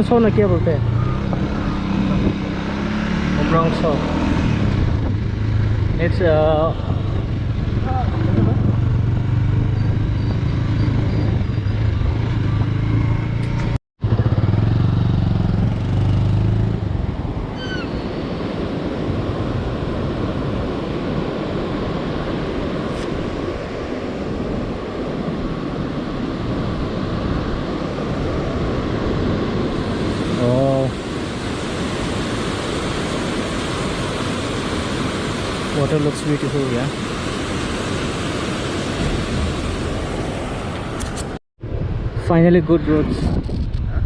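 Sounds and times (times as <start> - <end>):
motorcycle engine running: 4.9 - 17.0.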